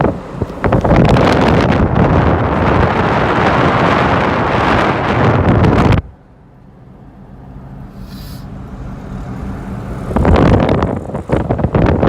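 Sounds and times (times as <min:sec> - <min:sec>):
wind rush on microphone: 0:00.0 - 0:06.1, 0:09.8 - 0:12.0
moving vehicle hum: 0:00.0 - 0:12.0.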